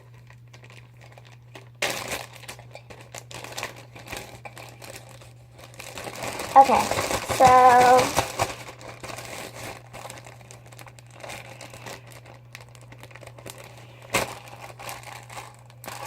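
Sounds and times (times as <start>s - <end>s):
slime crackling and squishing: 9.8s - 16.0s.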